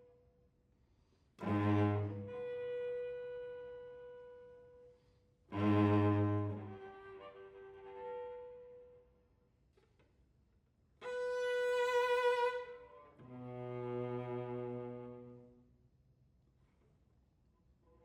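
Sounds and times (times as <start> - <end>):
cello playing bowed notes: 1.4 - 4.3, 5.5 - 8.8, 11.0 - 15.6.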